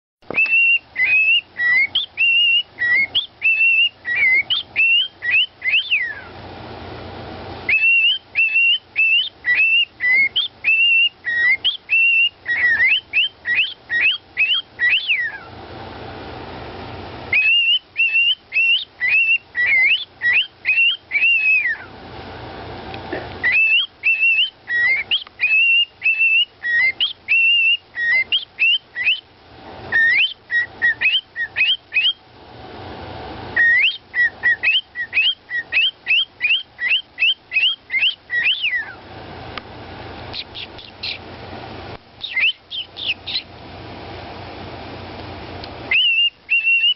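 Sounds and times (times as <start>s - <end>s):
parrot whistling a melody: 0.3s - 6.3s, 7.7s - 15.5s, 17.3s - 21.9s, 23.4s - 29.3s, 29.9s - 32.2s, 33.6s - 39.0s, 40.3s - 41.2s, 42.2s - 43.5s, 45.9s - 46.9s.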